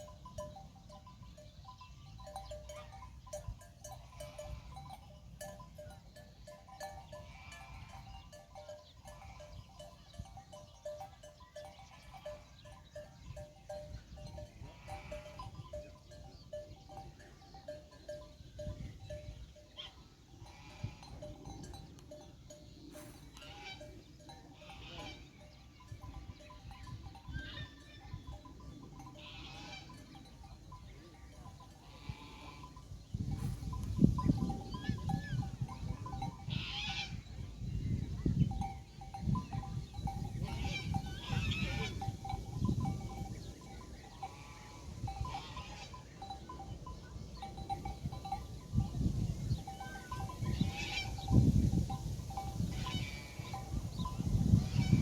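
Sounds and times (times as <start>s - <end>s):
sheep and goats bleating: 14.5s - 15.8s, 22.9s - 25.5s, 29.0s - 30.3s, 31.6s - 33.6s, 35.4s - 37.2s, 40.2s - 42.4s, 52.7s - 55.0s
flock of sheep: 18.7s - 49.0s, 49.6s - 55.0s.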